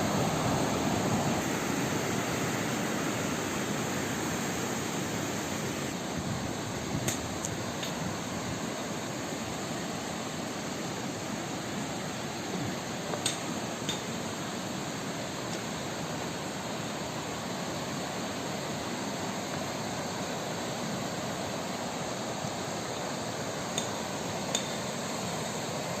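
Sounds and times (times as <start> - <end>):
river rushing: 0.0 - 26.0.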